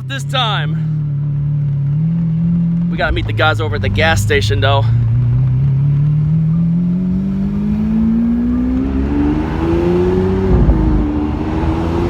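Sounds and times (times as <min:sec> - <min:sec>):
car engine accelerating hard: 0:00.8 - 0:12.0.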